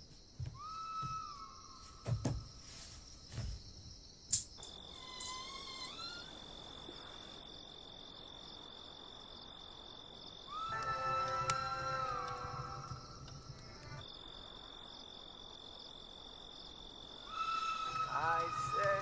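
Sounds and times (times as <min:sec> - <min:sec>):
crickets chirring: 0:00.0 - 0:19.0
sharp click: 0:04.3 - 0:04.8.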